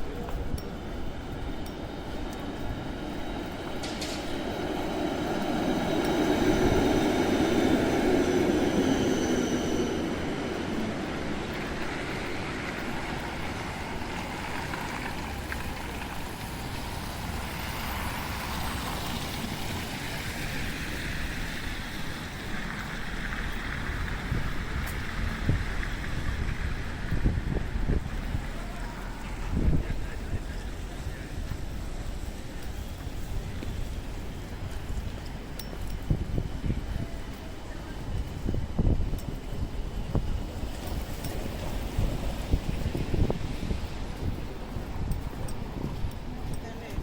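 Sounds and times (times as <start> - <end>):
traffic: 0.0 - 47.0
rain hiss: 0.8 - 36.8.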